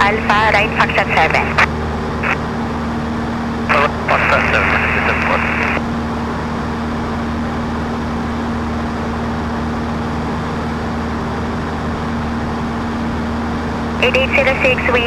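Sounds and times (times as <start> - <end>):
light aircraft engine droning: 0.0 - 15.0.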